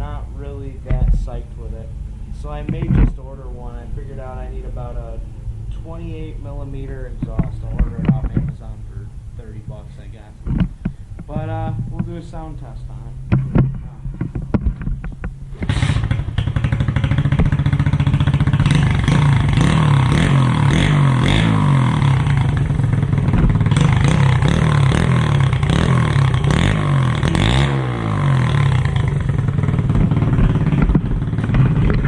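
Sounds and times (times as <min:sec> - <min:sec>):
motorbike engine idling and revving: 0:13.2 - 0:32.0.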